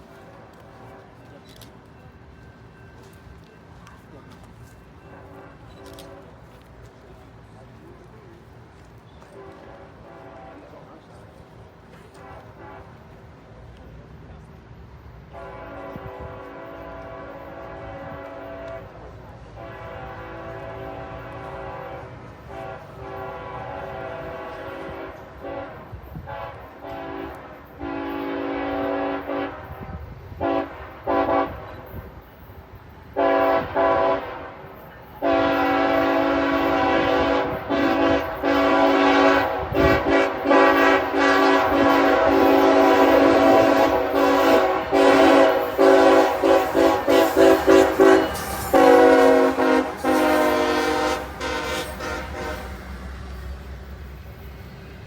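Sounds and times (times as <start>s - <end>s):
locomotive air horn blasts: 5.1s - 6.6s, 9.3s - 11.0s, 11.9s - 13.3s, 15.3s - 32.0s, 33.2s - 53.8s.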